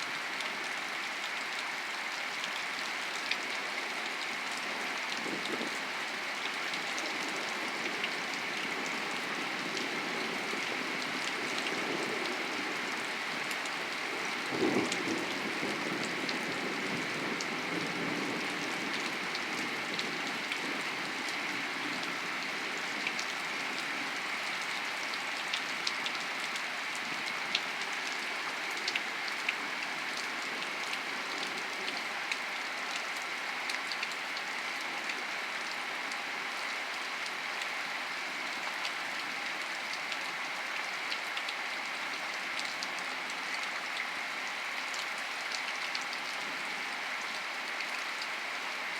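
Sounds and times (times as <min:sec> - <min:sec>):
steady rain falling: 0:00.0 - 0:48.9
raindrops ticking: 0:38.5 - 0:48.3.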